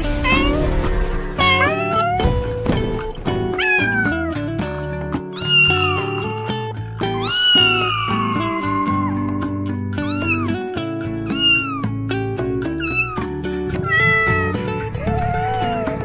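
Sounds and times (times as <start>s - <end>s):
cat meowing: 0.2s - 0.8s, 1.4s - 2.4s, 3.5s - 4.5s, 5.3s - 6.3s, 7.1s - 9.4s, 10.0s - 10.6s, 11.2s - 12.0s, 12.8s - 16.0s.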